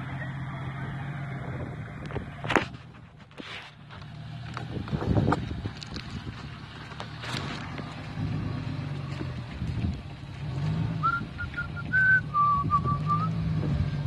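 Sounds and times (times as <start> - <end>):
engine humming: 0.0 - 14.0
person whistling a tune: 11.0 - 13.4.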